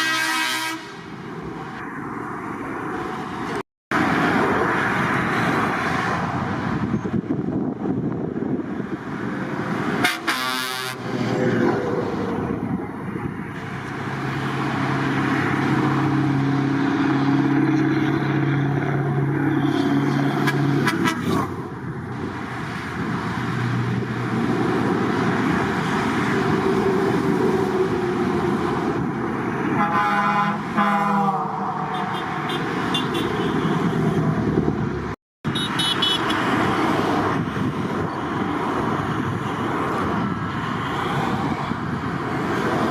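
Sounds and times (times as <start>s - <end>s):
truck air horns: 0.0s - 1.2s, 10.0s - 11.1s, 19.4s - 21.5s, 29.6s - 34.1s, 35.5s - 36.5s
trucks driving past: 0.0s - 42.9s.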